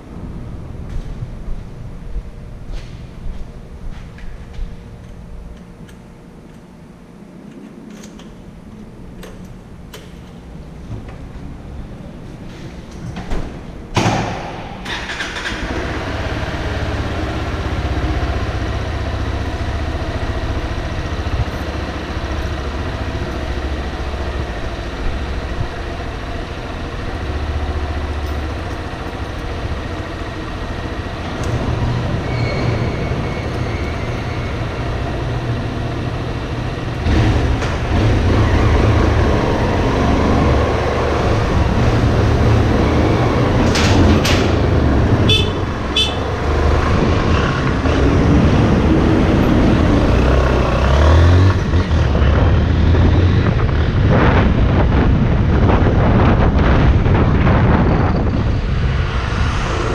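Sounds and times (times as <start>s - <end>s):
motorcycle engine starting: 14.0s - 54.4s
motorcycle pulling away: 14.8s - 54.6s.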